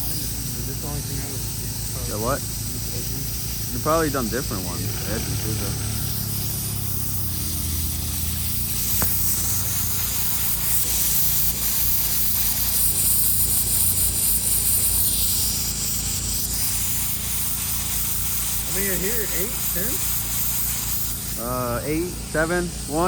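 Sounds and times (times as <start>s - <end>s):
low engine hum: 0.0s - 11.8s
compressed air hissing: 0.0s - 23.0s.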